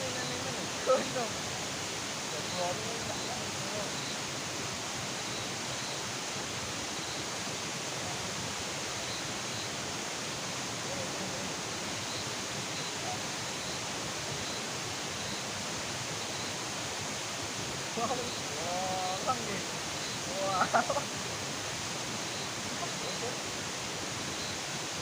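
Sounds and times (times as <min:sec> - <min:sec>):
outdoor night hiss: 0:00.0 - 0:25.0
faint high chirps: 0:10.9 - 0:15.5, 0:16.2 - 0:16.6, 0:22.1 - 0:23.4, 0:24.3 - 0:24.7.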